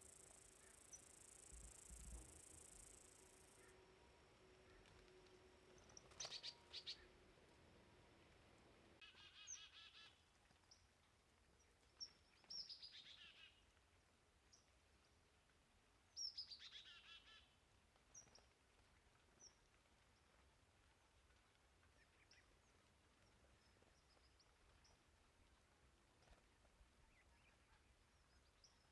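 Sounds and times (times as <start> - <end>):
chickadee calls: 6.0 - 7.2.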